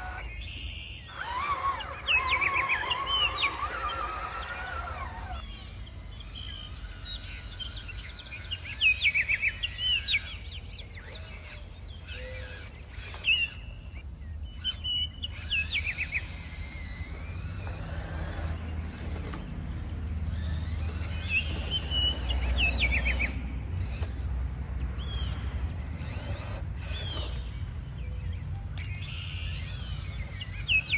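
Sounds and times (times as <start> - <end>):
small birds chirping: 0.0 - 30.9.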